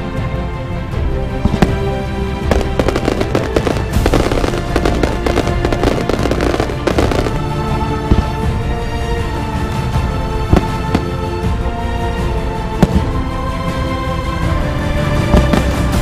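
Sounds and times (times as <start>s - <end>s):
background music: 0.0s - 16.0s
fireworks crackling bangs: 1.5s - 7.5s.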